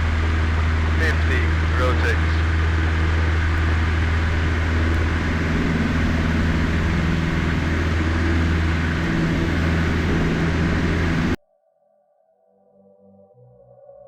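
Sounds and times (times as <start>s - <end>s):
small plane engine and propeller: 0.0s - 11.4s.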